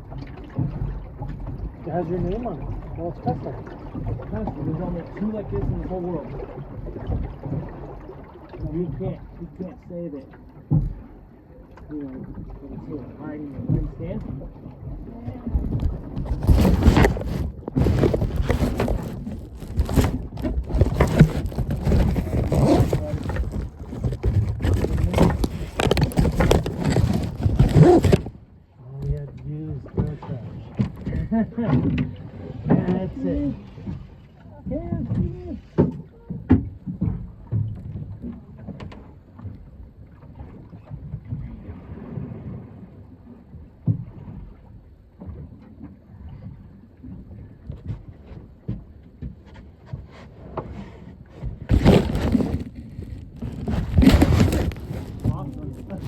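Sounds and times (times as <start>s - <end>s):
boat engine rumble: 0.0s - 56.0s
knocks on boat: 10.6s - 11.0s
wind rumbling on microphone: 13.8s - 28.5s, 51.4s - 56.0s.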